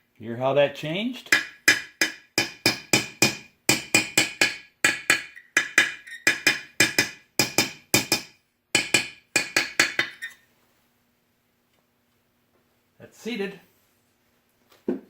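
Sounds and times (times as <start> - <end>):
hammer tapping on metal: 1.3 - 10.2.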